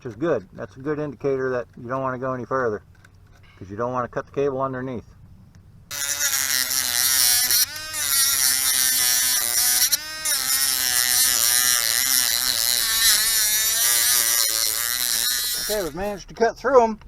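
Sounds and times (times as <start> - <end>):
rotary tool whining: 5.9 - 16.3.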